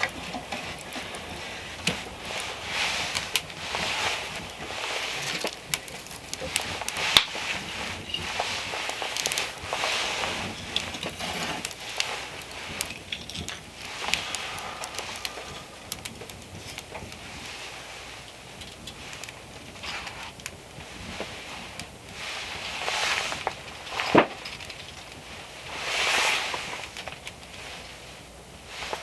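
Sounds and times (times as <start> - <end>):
snow crunching and scraping: 0.0 - 12.8, 25.5 - 27.0.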